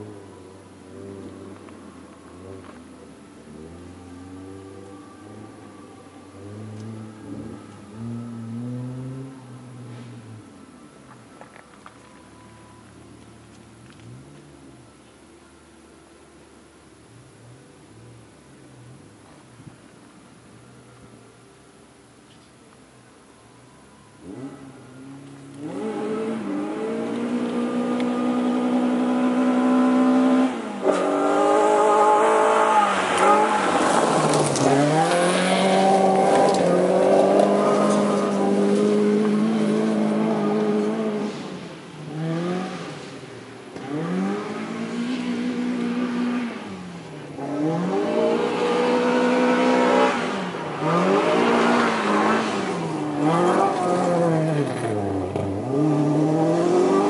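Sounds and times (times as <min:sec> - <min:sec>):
car engine revving: 0:00.0 - 0:10.4, 0:24.2 - 0:57.0.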